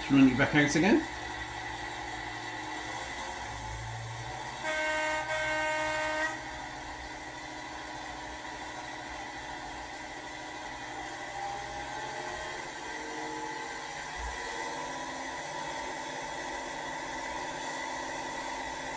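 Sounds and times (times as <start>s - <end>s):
recorded engine sound: 0.0s - 18.9s
model train horn blasts: 4.5s - 7.6s.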